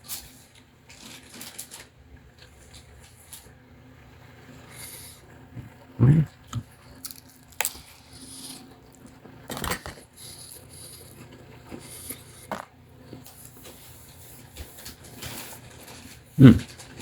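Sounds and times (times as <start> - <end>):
person chewing crunchy food: 6.1 - 13.8.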